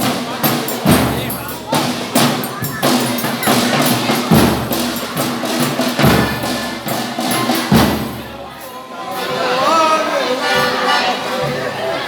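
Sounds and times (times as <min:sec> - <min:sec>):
bass drum beat: 0:00.0 - 0:08.4
snare and hand percussion: 0:00.0 - 0:09.4.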